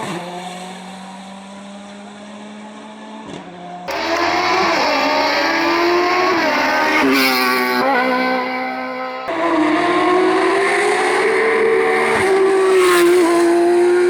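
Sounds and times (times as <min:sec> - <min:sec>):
racing car engine shifting gears: 0:03.3 - 0:14.0.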